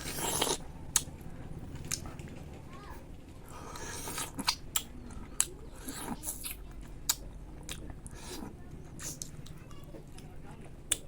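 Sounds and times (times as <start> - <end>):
person chewing: 0.0 - 1.2, 3.4 - 9.6
wet mouth clicks: 3.7 - 9.6.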